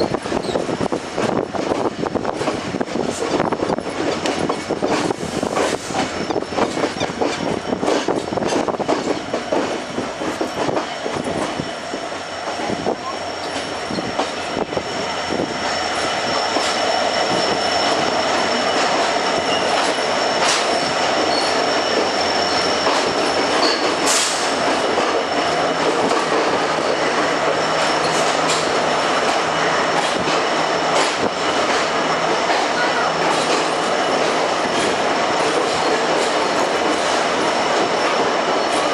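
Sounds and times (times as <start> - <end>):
train running noise: 0.0 - 38.9
train wheels clicking over rail joints: 0.0 - 38.9
high wheel squeal: 13.0 - 15.0, 15.6 - 24.6, 25.2 - 30.0.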